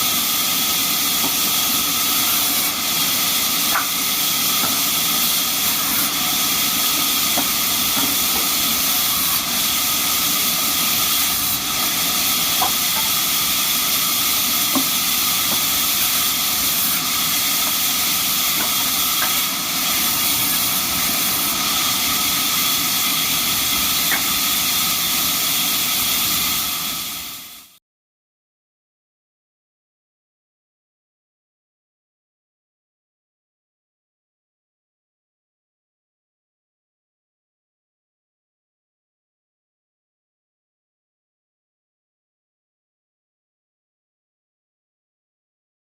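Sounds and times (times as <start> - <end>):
sawmill machine hissing: 0.0 - 27.8.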